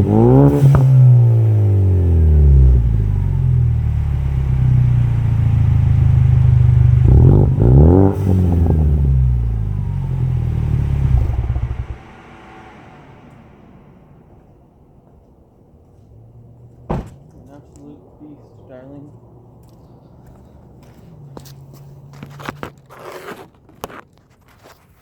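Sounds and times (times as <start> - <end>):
engine revving: 0.0 - 15.2
engine idling: 0.0 - 21.0.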